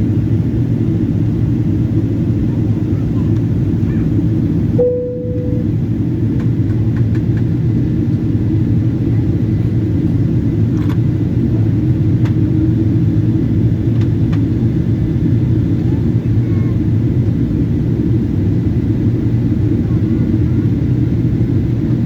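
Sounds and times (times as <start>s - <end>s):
airplane cabin engine rumble: 0.0s - 22.0s
short steady tone: 4.8s - 5.8s.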